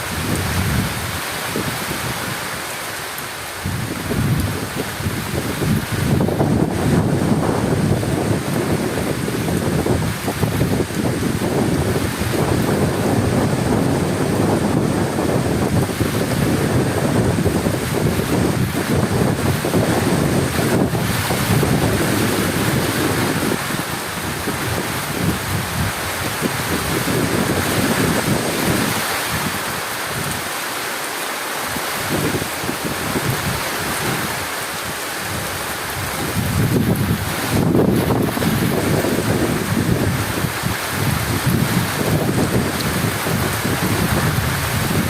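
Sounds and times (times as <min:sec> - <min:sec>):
heavy rain hissing: 0:00.0 - 0:45.0
thunder rumbling: 0:03.6 - 0:29.5, 0:35.3 - 0:45.0.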